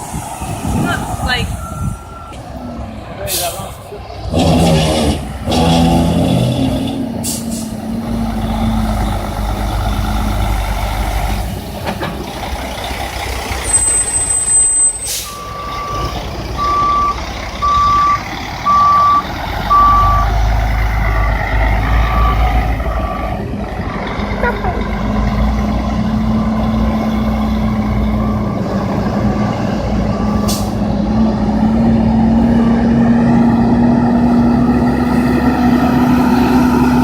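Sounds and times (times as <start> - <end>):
diesel truck engine running: 0.0 - 37.0
reversing beeper: 1.0 - 2.8, 13.6 - 20.5, 21.2 - 23.4, 27.9 - 29.3
air brake hiss: 15.0 - 15.5.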